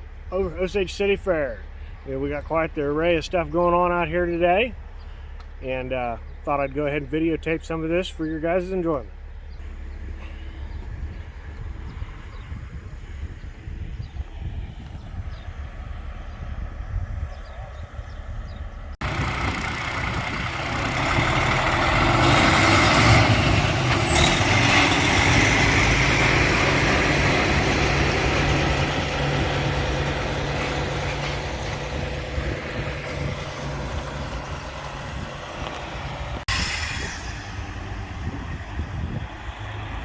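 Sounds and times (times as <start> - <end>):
heavy truck engine running: 18.0 - 40.0
hiss-like glide: 36.5 - 38.0.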